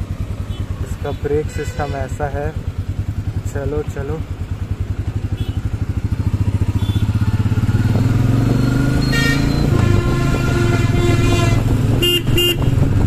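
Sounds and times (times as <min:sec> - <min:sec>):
vehicle horn: 0:00.5 - 0:02.3, 0:05.3 - 0:05.7, 0:06.7 - 0:07.2, 0:09.0 - 0:12.8
motorcycle engine thumping: 0:04.2 - 0:13.0.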